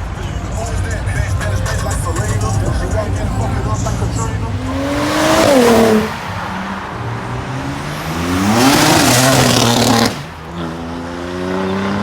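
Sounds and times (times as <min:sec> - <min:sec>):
car engines revving hard: 0:00.0 - 0:12.0.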